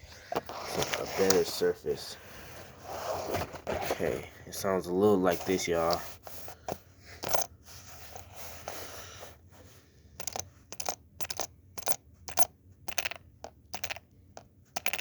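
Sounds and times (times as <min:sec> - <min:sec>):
zipper scraping: 0:02.6 - 0:04.2.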